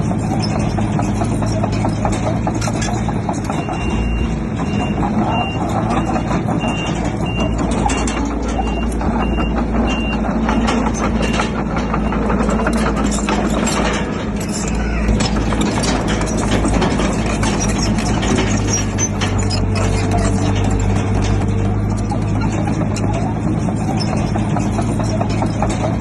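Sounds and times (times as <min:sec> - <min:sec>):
bulldozer diesel engine under load: 0:00.0 - 0:26.0
sharp metal clanks: 0:00.2 - 0:26.0
reversing alarm beeping: 0:03.5 - 0:13.2.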